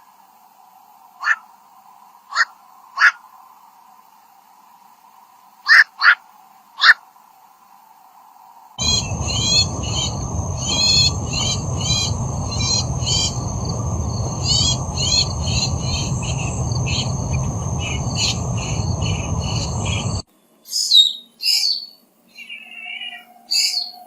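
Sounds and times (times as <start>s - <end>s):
bird chirping: 8.8s - 20.2s
high-pitched insect drone: 8.8s - 20.2s
low rumbling background noise: 8.8s - 20.2s.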